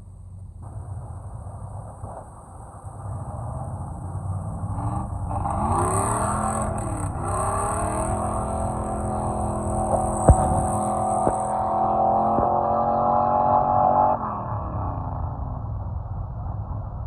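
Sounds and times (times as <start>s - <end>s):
off-road engine revving: 3.0s - 14.9s.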